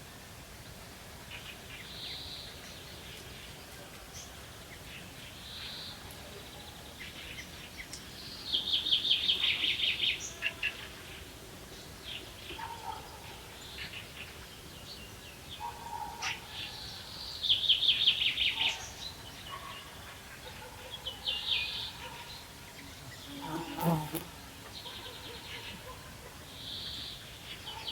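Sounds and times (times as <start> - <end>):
songbird singing: 21.1 - 25.9
background hiss: 21.3 - 27.6.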